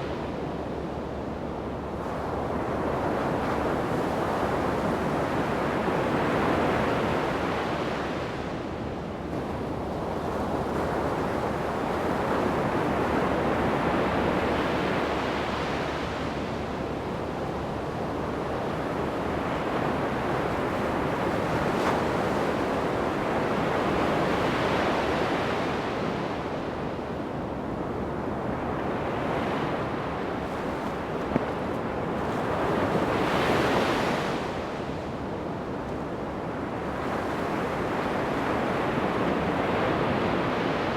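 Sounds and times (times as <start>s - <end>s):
ocean waves breaking on beach: 28.5s - 35.2s.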